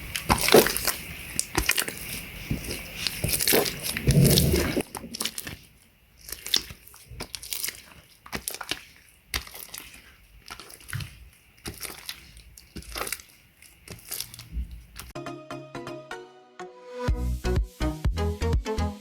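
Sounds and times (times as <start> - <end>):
slime sticky crackles: 0.0 - 15.2.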